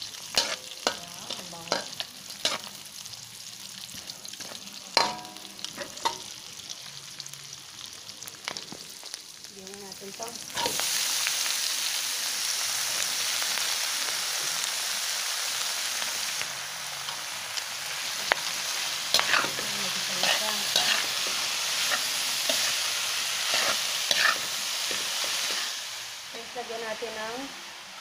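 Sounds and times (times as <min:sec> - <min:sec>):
food sizzling in hot oil: 0:00.0 - 0:28.0
metal spatula scraping a pan: 0:00.3 - 0:02.7, 0:05.0 - 0:06.3, 0:18.2 - 0:25.8.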